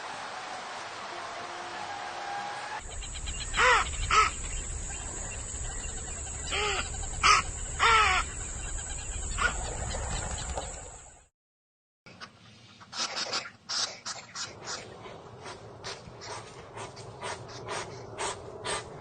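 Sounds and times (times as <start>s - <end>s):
bird harsh calls: 2.8s - 10.9s.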